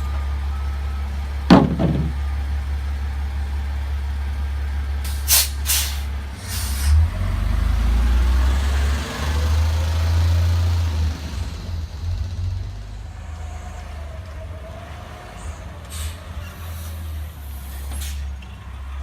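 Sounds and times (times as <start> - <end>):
garbage truck engine under load: 0.0 - 3.4.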